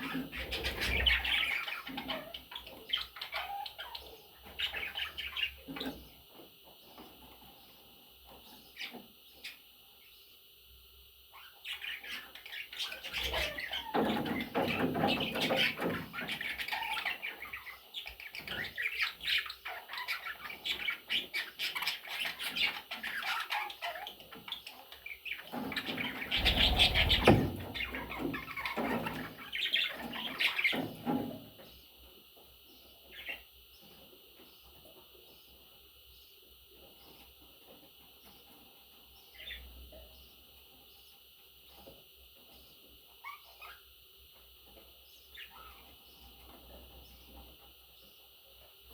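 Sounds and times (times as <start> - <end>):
budgerigars chirping: 11.3 - 30.8, 43.2 - 43.8, 45.3 - 46.2
low thumps: 26.4 - 28.0.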